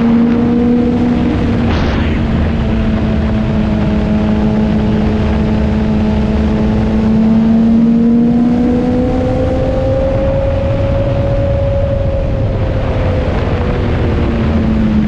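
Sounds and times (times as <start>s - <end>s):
low rumble: 0.0s - 7.2s
motorcycle engine cruising: 0.0s - 15.0s.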